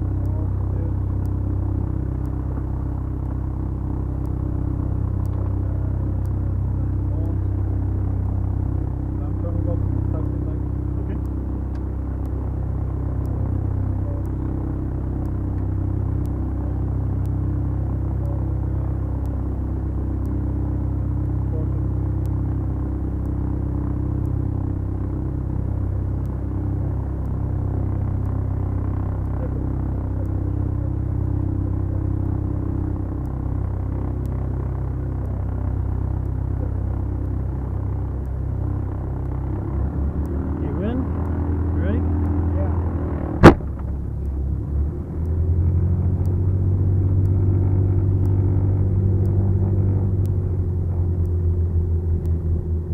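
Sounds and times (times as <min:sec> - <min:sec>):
aircraft engines droning: 0:00.0 - 0:52.9
faint tick: 0:05.2 - 0:05.5, 0:43.4 - 0:52.9.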